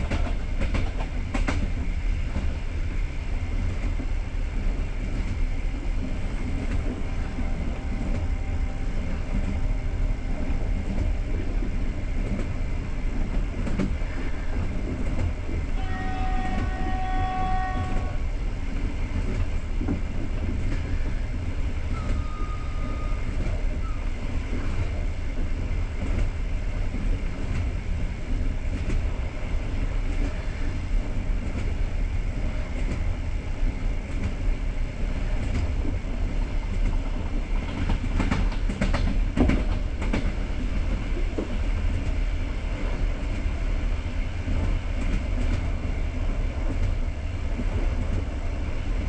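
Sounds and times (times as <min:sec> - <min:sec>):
train wheels rumbling on rails: 0:00.0 - 0:49.0
train horn: 0:07.0 - 0:10.7, 0:15.7 - 0:18.4, 0:21.9 - 0:24.0.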